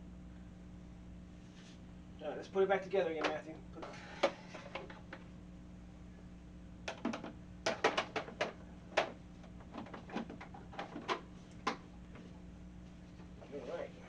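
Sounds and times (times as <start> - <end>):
plastic hive parts clacking: 6.9 - 11.8.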